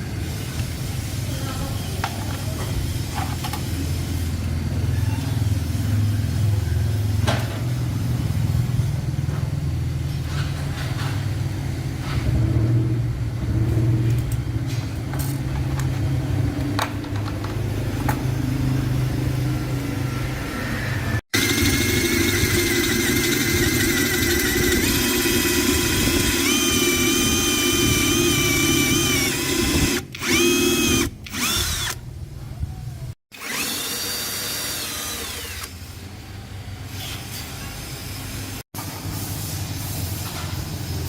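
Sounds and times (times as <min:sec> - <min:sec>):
motor running with low hum: 0:17.9 - 0:32.3, 0:33.4 - 0:35.8.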